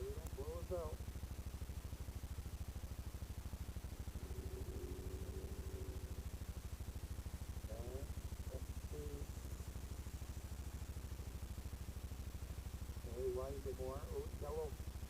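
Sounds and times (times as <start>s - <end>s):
atv engine idling: 0.0s - 15.0s
faint high hum: 0.0s - 15.0s.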